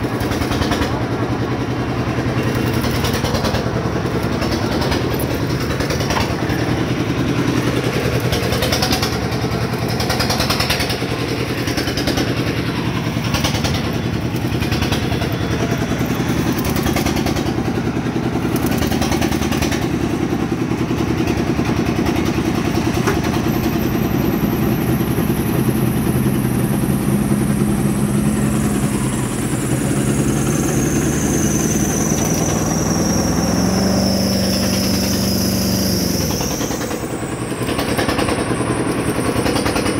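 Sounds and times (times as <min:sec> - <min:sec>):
engine running: 0:00.0 - 0:39.9
high whine falling in pitch: 0:24.5 - 0:36.3.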